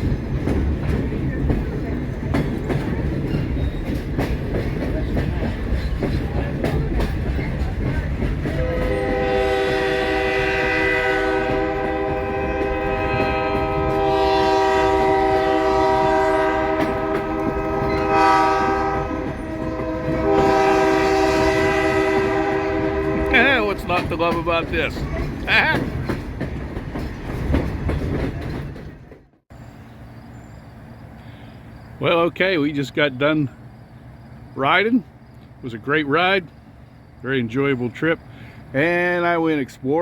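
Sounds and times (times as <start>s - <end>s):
train rumble and clatter: 0.0s - 40.0s
locomotive air horn: 8.4s - 23.7s.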